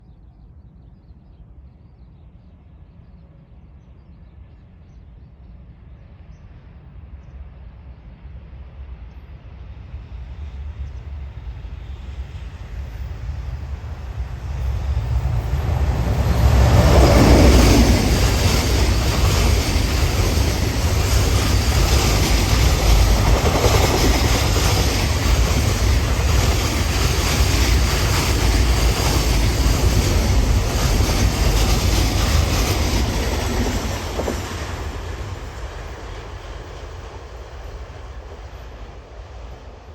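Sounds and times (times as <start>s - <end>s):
freight train rumbling past: 8.0s - 39.9s.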